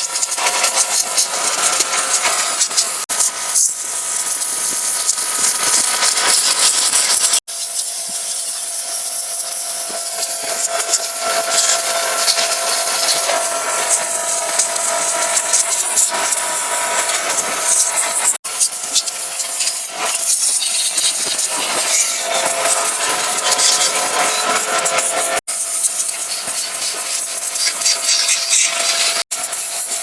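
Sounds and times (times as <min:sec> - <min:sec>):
pressure washer machine whine: 0:00.0 - 0:30.0
pressure washer water jet hiss: 0:00.0 - 0:30.0.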